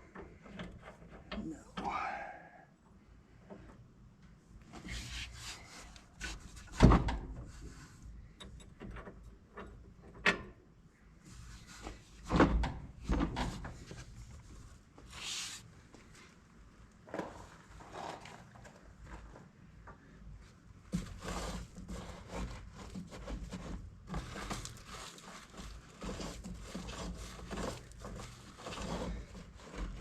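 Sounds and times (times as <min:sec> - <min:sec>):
rustling: 0:21.0 - 0:30.0.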